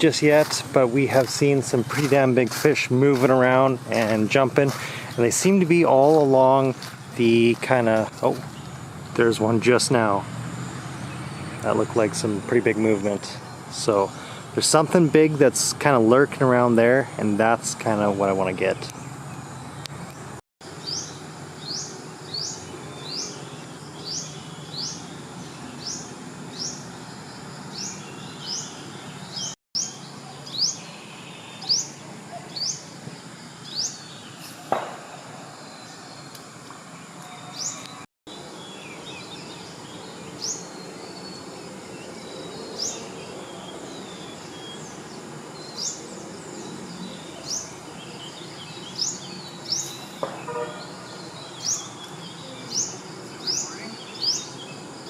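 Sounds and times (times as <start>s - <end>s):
insect-like background noise: 0.0s - 55.0s
single knock: 34.7s - 35.1s.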